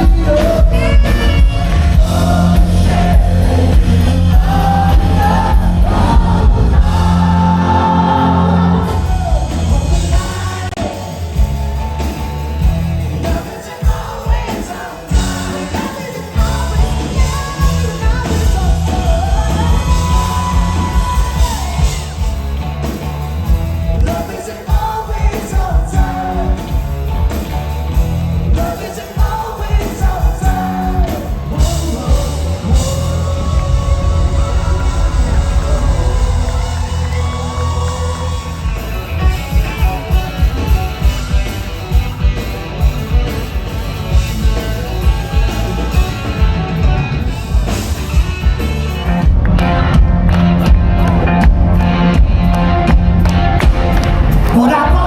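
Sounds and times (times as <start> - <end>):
crowd yelling and whooping: 0.0 - 26.7, 28.5 - 55.0
lead singer: 0.0 - 55.0
live band playing: 0.0 - 55.0.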